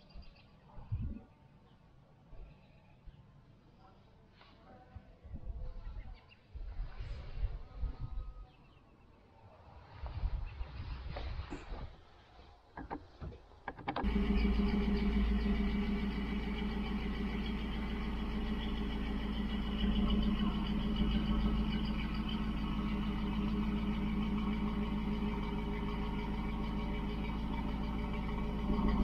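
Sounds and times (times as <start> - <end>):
vehicle engine idling: 14.0 - 29.0.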